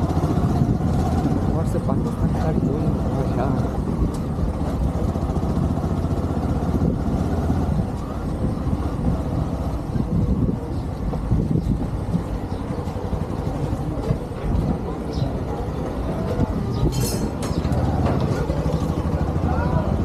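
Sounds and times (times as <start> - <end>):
motorcycle engine and road rumble: 0.0 - 20.0.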